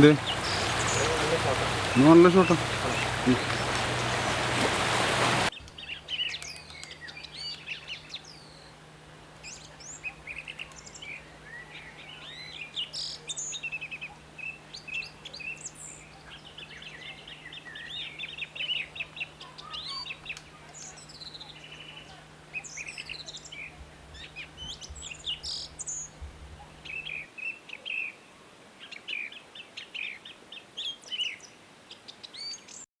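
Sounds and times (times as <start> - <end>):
faint low hum: 0.0 - 27.3
small birds chirping: 0.0 - 32.8.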